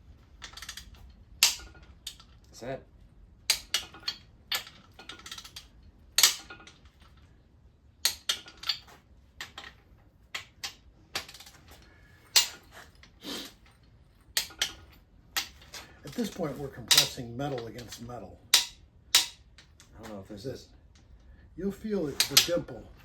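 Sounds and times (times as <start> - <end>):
ratchet clicking on metal: 3.5 - 7.0, 14.4 - 19.7.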